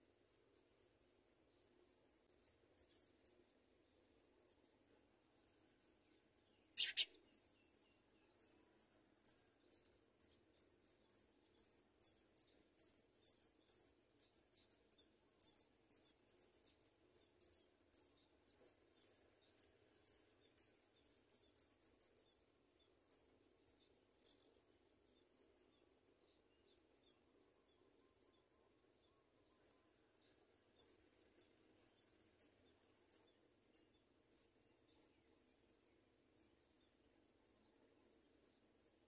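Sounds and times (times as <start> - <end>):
sharp bird chirp: 6.7 - 7.3
nestlings cheeping: 6.8 - 7.2.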